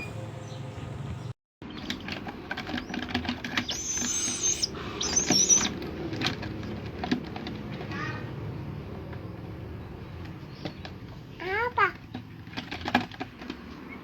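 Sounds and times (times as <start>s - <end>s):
baby bird of prey calling: 3.5s - 5.9s.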